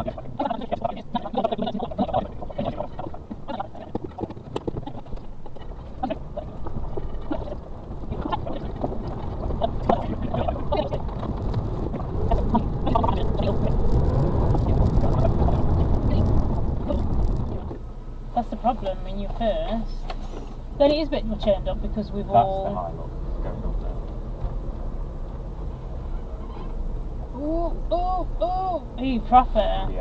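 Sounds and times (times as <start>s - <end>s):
truck engine running: 0.0s - 30.0s
knocks and rattles of bouncing truck: 1.2s - 17.9s.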